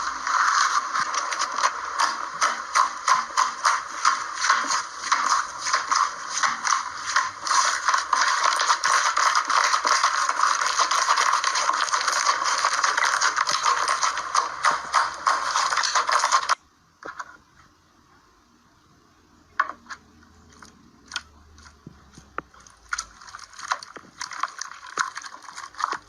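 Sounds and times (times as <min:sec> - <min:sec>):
slime crackling and popping: 0:00.0 - 0:16.6, 0:22.5 - 0:26.0.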